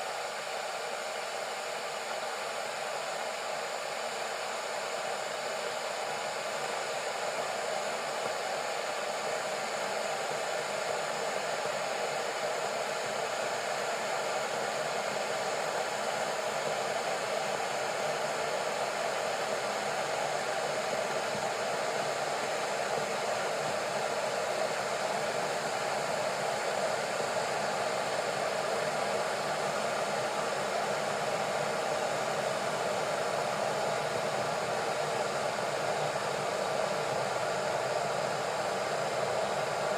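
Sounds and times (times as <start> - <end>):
kettle heating water: 0.0 - 39.9.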